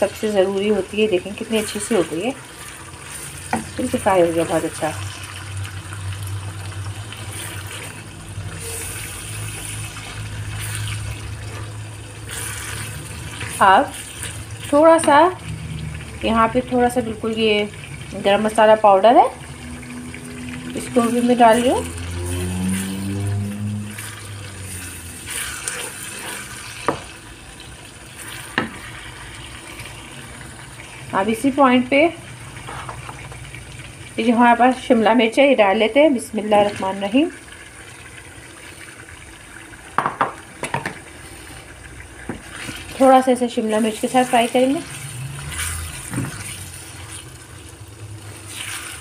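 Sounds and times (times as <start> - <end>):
meat sizzling in oil: 0.0 - 49.0
wooden spatula stirring: 7.1 - 15.3, 20.8 - 27.2, 43.8 - 47.5, 48.3 - 49.0
wooden spoon knocking on pan: 40.0 - 41.0.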